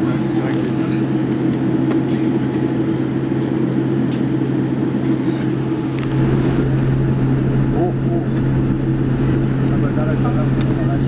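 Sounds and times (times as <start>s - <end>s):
airliner cabin drone: 0.0s - 11.0s
air noise: 5.6s - 11.0s.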